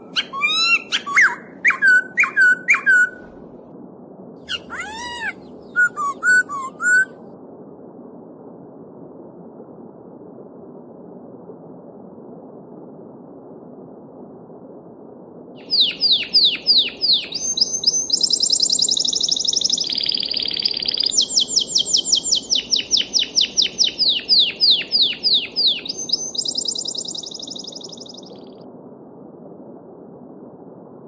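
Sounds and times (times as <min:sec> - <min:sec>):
songbird singing: 0:00.0 - 0:03.3, 0:04.5 - 0:07.1, 0:15.6 - 0:28.6
babbling stream: 0:04.5 - 0:07.1.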